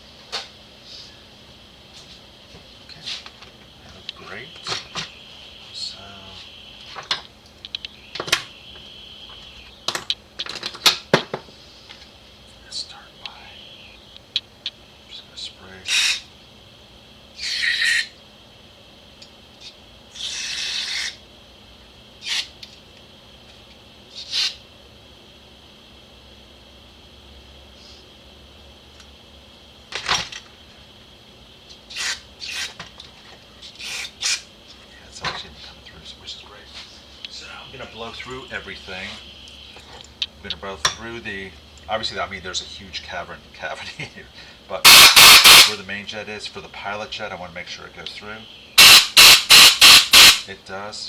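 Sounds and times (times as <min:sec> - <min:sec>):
aerosol spray hissing: 0:48.8 - 0:50.4.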